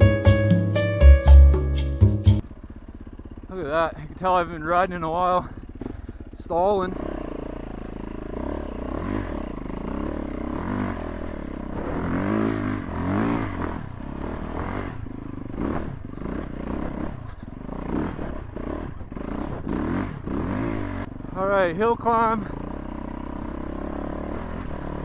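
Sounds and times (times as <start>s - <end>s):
motorcycle engine revving: 2.4s - 25.0s.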